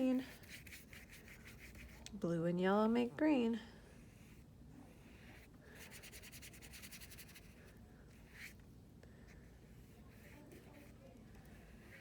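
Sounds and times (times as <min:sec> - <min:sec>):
paintbrush scrubbing on paper: 0:00.2 - 0:02.0, 0:04.0 - 0:08.6, 0:09.4 - 0:12.0.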